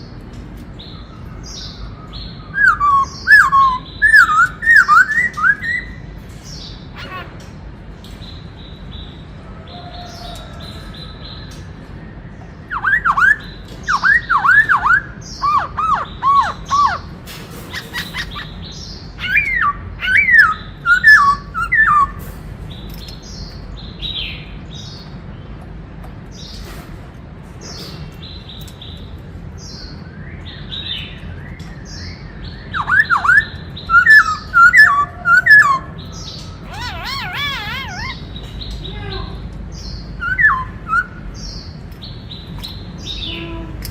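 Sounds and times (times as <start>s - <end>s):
soft high bird calls: 0.8s - 7.7s, 8.4s - 25.1s, 29.7s - 43.8s
bird whistling song: 0.9s - 6.1s, 12.6s - 17.1s, 17.7s - 22.2s, 29.7s - 38.8s, 39.8s - 41.8s.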